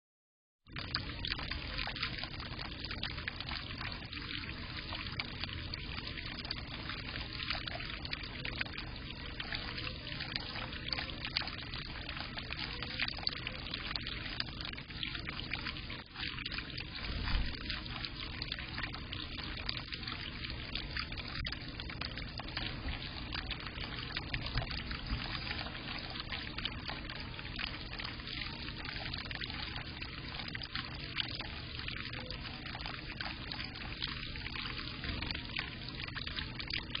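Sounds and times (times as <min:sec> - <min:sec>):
water trickling into bird bath: 0:00.7 - 0:37.0.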